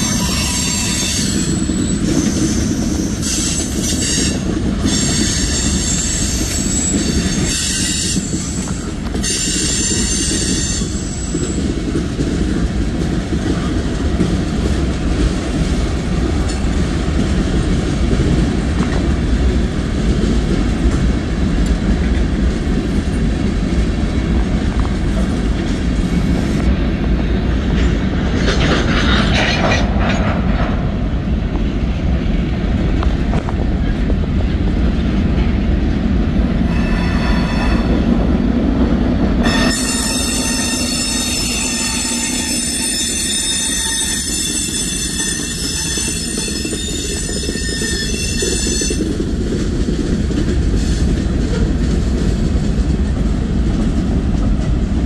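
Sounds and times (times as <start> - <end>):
high-pitched wheel squeal: 0.0 - 8.6, 36.7 - 38.1, 39.4 - 49.1
train wheels rumbling on rail: 0.0 - 55.0.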